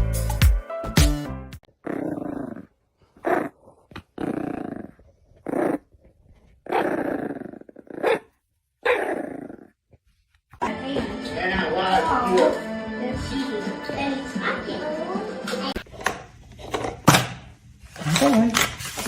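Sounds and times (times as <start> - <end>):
dog growling and barking: 1.7 - 6.0, 6.6 - 9.8.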